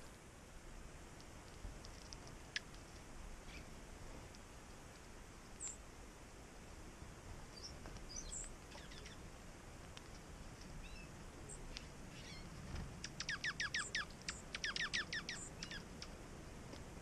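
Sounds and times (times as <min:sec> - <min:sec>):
faint high bird chips: 0:10.8 - 0:16.2.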